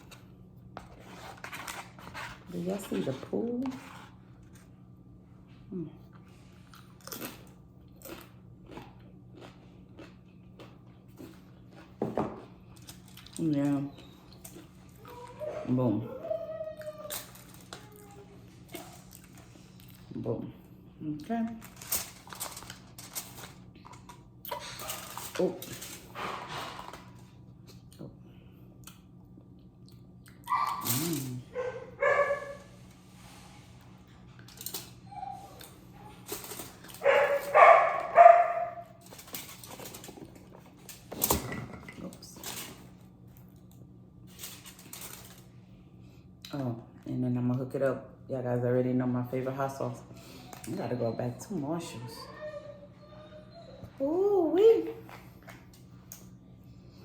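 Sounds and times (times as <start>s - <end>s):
chewing crunchy chips: 6.1s - 15.4s, 16.8s - 20.2s, 21.6s - 28.2s
dog barking: 31.5s - 32.7s, 37.0s - 38.9s.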